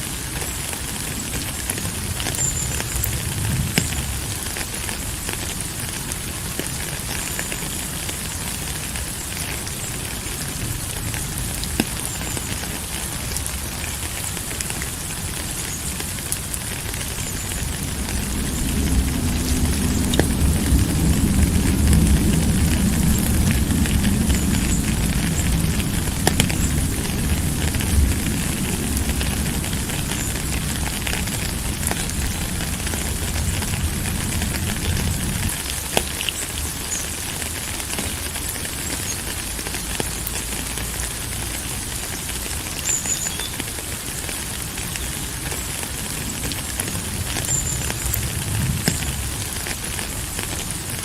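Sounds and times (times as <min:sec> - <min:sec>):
steady rain falling: 0:00.0 - 0:51.0
low rumble: 0:17.7 - 0:35.8.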